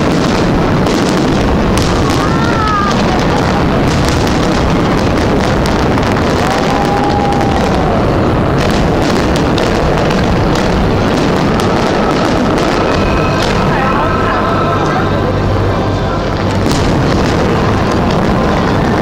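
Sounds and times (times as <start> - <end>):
continuous rumble: 0.0 - 19.0
fireworks bangs and crackles: 0.0 - 19.0
faint firework whistle: 11.2 - 15.4.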